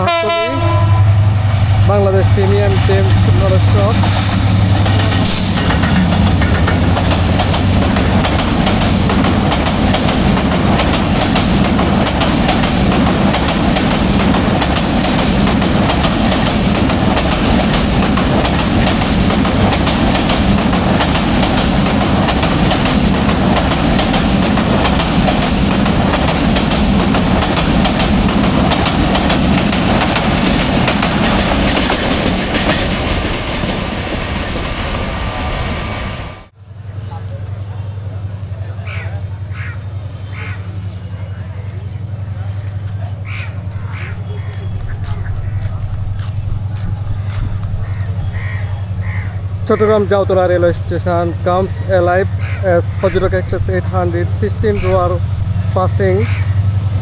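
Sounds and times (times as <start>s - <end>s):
train wheels clacking on rails: 2.3s - 36.5s.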